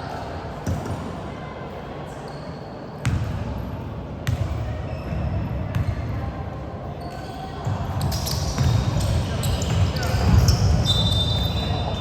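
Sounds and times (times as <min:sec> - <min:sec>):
basketball bouncing on gym floor: 0:04.2 - 0:04.6, 0:05.7 - 0:06.1, 0:07.7 - 0:11.1.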